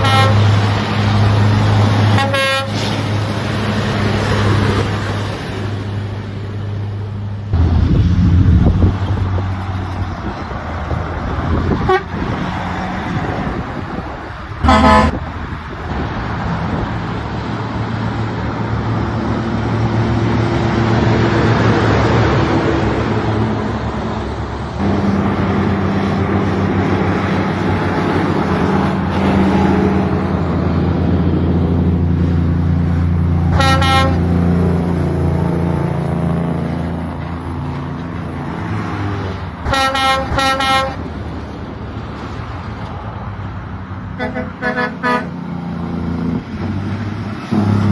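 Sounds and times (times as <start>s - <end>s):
horn honks: 0.0s - 0.5s, 2.1s - 2.9s, 11.8s - 12.4s, 14.6s - 15.3s, 33.5s - 34.4s, 39.6s - 41.0s, 44.2s - 45.4s
truck engine running: 0.0s - 47.9s.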